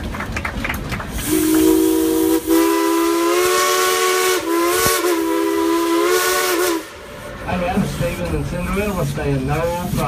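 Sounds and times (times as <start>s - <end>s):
steam locomotive whistle: 1.2s - 7.4s
steam hissing: 1.2s - 10.0s.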